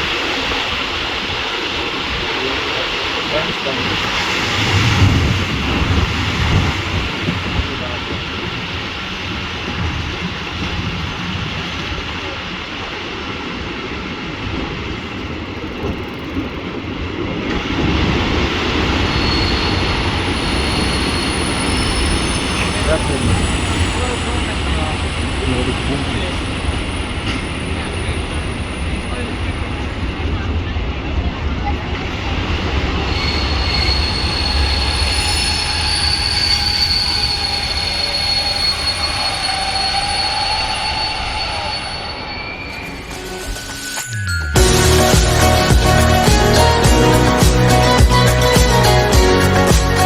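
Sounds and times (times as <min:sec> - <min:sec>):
train wheels rumbling on track: 0:00.0 - 0:50.0
faint high squeals: 0:18.8 - 0:30.0, 0:32.9 - 0:44.2.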